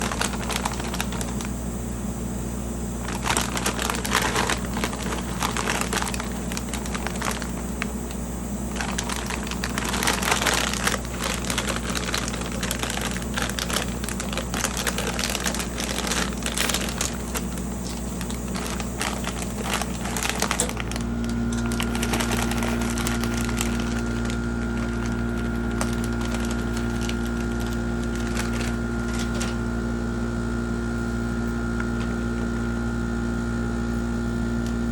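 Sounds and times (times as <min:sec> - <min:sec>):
plastic packaging crinkling: 0:00.0 - 0:01.8, 0:02.8 - 0:29.8
steady motor hum: 0:00.0 - 0:34.9
snacks crunching: 0:03.0 - 0:29.6.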